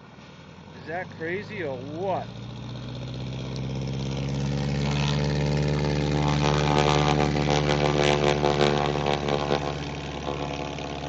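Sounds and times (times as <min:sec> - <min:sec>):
engine running steadily: 0:00.0 - 0:11.0
rough crackling buzz: 0:00.2 - 0:11.0.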